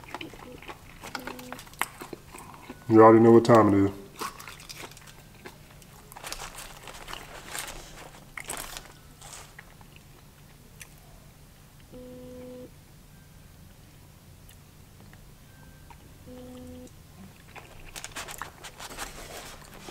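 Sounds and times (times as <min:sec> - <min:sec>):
crunchy biting and chewing: 0:00.0 - 0:02.9, 0:04.1 - 0:11.1, 0:16.4 - 0:19.9
short low hum: 0:11.9 - 0:12.7, 0:16.2 - 0:17.3.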